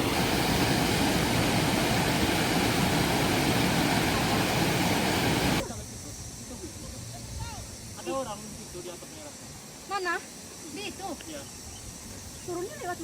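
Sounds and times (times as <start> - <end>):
water rushing: 0.0 - 5.6.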